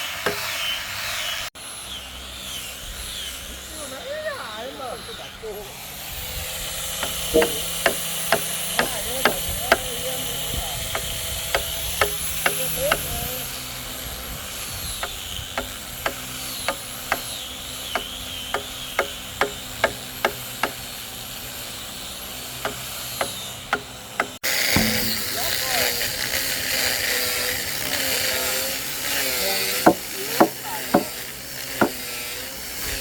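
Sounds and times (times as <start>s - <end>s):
hand tool knocking on wood: 7.0s - 9.9s, 22.7s - 25.6s, 29.9s - 31.1s.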